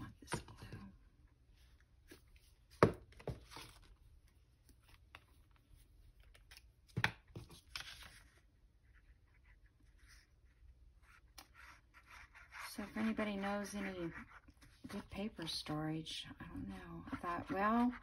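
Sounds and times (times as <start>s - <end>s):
paper rustling: 4.7s - 8.4s.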